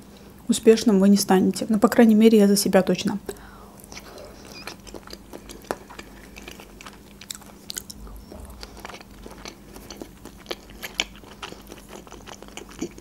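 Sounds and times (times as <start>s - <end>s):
chewing soft food: 3.8s - 13.0s.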